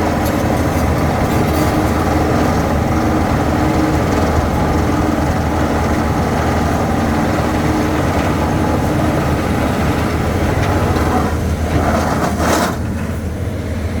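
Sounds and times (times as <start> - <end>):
heavy machinery humming: 0.0 - 14.0.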